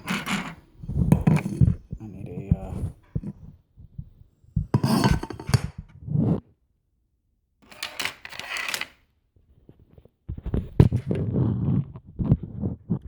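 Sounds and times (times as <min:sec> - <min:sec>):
objects clicking and clattering: 0:07.6 - 0:09.0.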